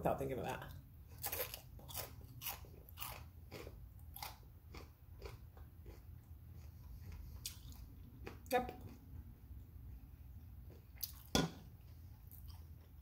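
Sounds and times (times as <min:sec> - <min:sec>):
crunchy food being chewed: 0:01.1 - 0:09.1, 0:10.6 - 0:13.0.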